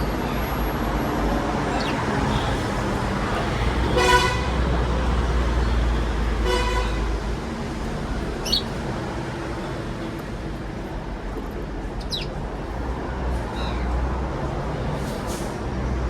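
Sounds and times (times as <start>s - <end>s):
road traffic rumble: 0.0s - 16.0s
short honks: 3.9s - 4.6s.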